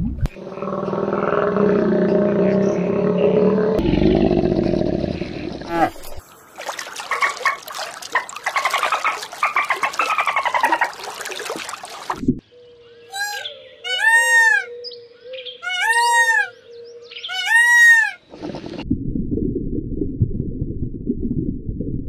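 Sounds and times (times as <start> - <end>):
peacock wailing calls: 13.1 - 14.9, 15.5 - 16.6, 17.2 - 18.2.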